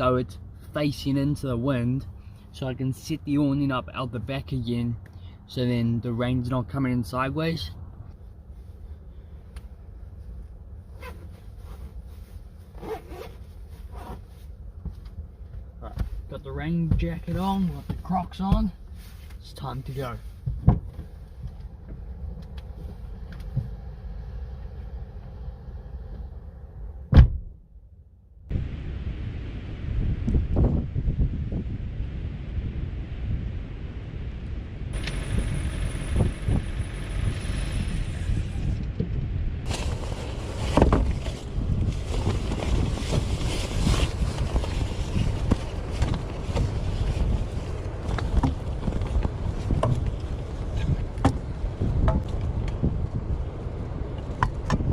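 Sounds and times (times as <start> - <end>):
wind and rain buffeting car: 6.1 - 27.6, 28.5 - 54.9
loud thump: 27.0 - 27.6.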